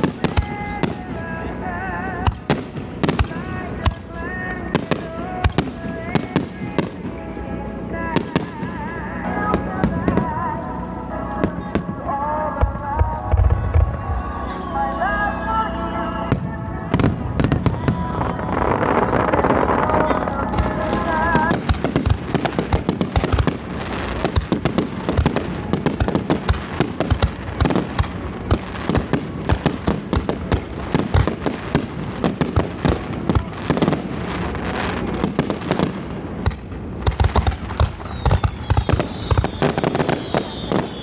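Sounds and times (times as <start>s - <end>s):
fireworks bursting and crackling: 0.0s - 41.0s
high falling whistle: 37.0s - 41.0s.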